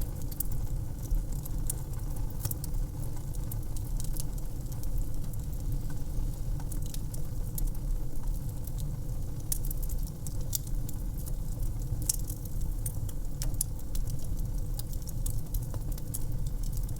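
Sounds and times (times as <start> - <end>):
wood fire crackling and popping: 0.0 - 16.9.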